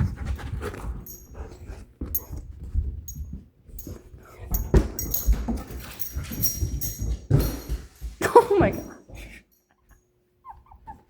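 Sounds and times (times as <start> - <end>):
scuffling and knocks: 0.0 - 9.4
puppy noises: 9.2 - 11.0.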